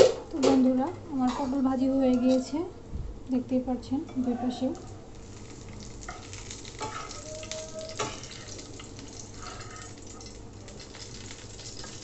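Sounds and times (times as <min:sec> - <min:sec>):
vegetables sizzling in oil: 0:04.6 - 0:12.0
metal spatula scraping a pan: 0:06.8 - 0:07.2.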